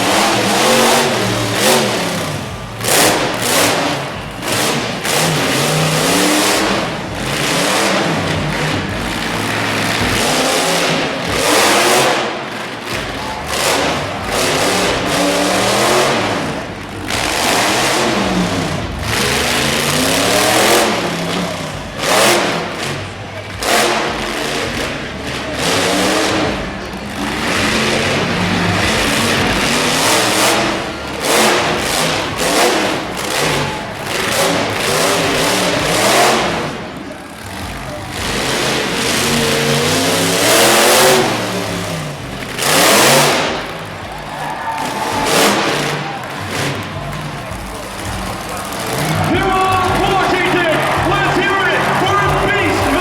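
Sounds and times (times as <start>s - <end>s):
truck engine revving: 0.0s - 53.0s.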